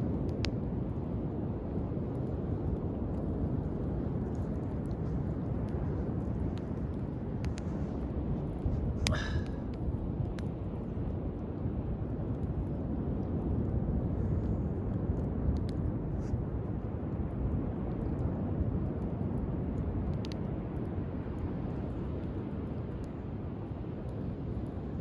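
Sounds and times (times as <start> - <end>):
bonfire crackling: 0.0 - 25.0
surf rumble: 0.0 - 25.0
wind: 0.0 - 25.0.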